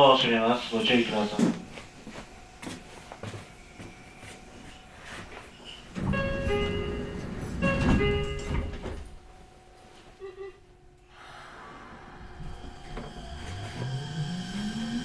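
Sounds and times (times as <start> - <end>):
train sliding doors closing: 4.9 - 9.4, 11.8 - 15.0
electronic door chime: 6.0 - 9.1.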